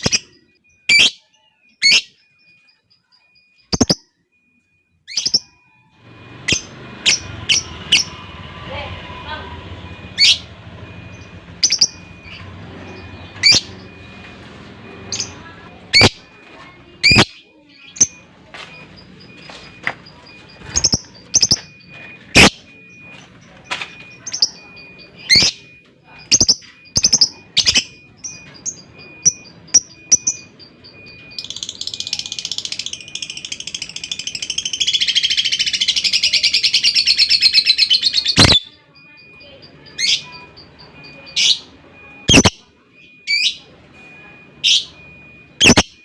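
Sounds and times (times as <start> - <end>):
bird chirping: 0.0 - 43.7, 44.6 - 46.0
bird chattering trill: 3.6 - 4.1, 11.2 - 13.9, 16.9 - 18.3, 24.2 - 38.8, 39.6 - 42.6, 45.6 - 45.9.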